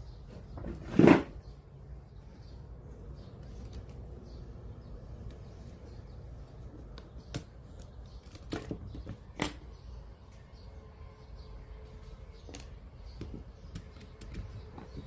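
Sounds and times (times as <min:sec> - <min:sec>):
small parts and tools clicking: 0:06.9 - 0:09.7, 0:12.5 - 0:15.0.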